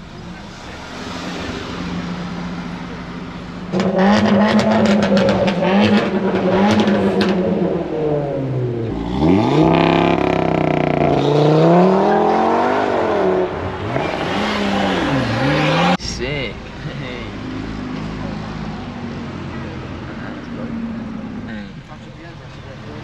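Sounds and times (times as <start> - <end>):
car engine revving: 0.0 - 23.0
crackling exhaust: 0.0 - 23.0.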